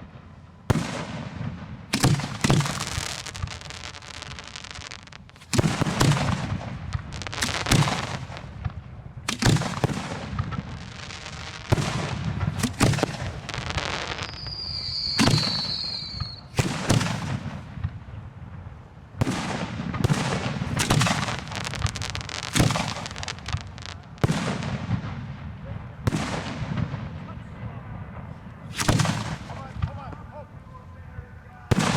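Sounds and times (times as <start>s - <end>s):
fireworks booming: 0.0s - 30.7s, 31.7s - 31.9s
fireworks crackling: 0.7s - 31.9s
high whistle: 14.1s - 16.5s.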